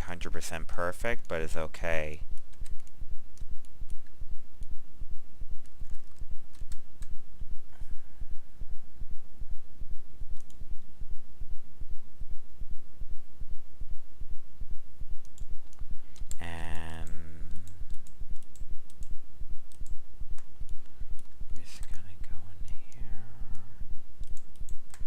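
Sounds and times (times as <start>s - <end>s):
low throbbing hum: 1.8s - 25.0s
keyboard and mouse clicks: 5.6s - 7.2s, 10.3s - 10.6s, 15.2s - 22.0s, 22.6s - 25.0s.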